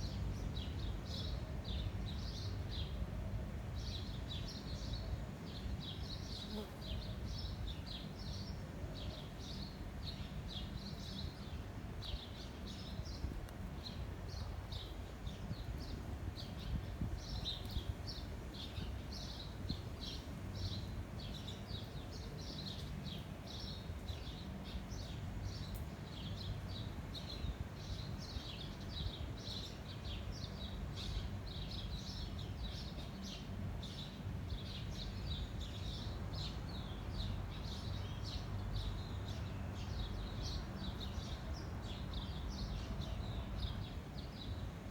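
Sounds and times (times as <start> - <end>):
wind rumble on microphone: 11.7 - 22.0.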